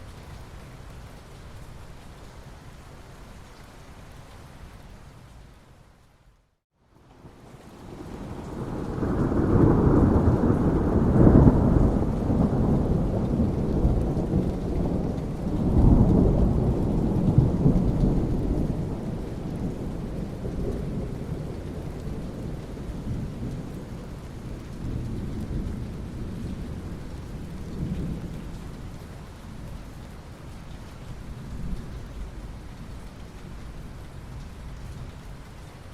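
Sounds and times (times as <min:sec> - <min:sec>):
steady rain: 0:00.0 - 0:35.9
thunder rolling: 0:07.2 - 0:23.8.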